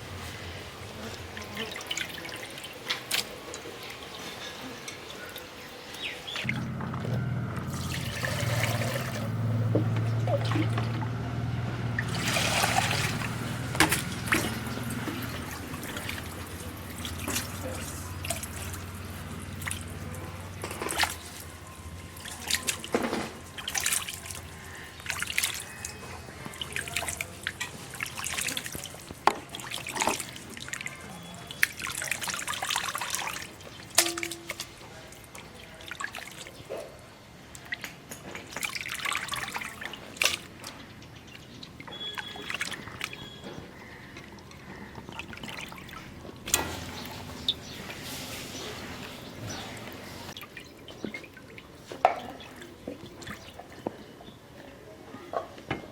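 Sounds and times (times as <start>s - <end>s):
water trickling and dripping: 11.9s - 36.8s, 37.5s - 54.3s.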